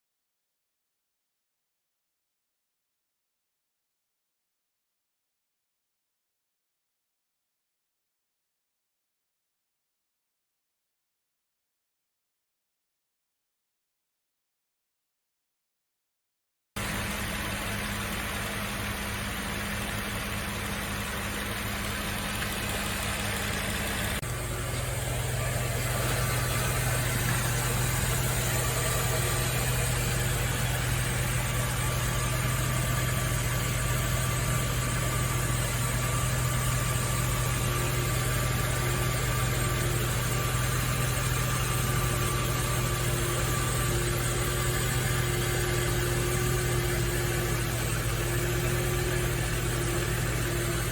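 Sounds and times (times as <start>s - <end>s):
car engine idling: 16.8s - 50.9s.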